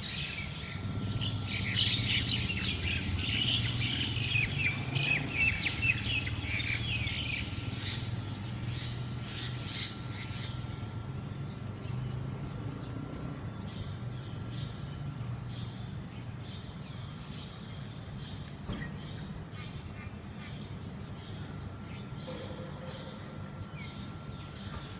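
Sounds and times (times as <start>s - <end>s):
magpie-robins chirping: 0.0s - 10.8s
steady low hum: 0.0s - 24.9s.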